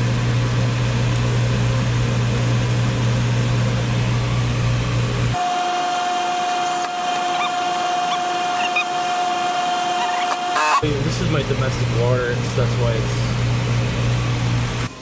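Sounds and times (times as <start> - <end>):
low machine hum with rushing: 0.0 - 15.0
high-pitched whine: 5.4 - 11.0.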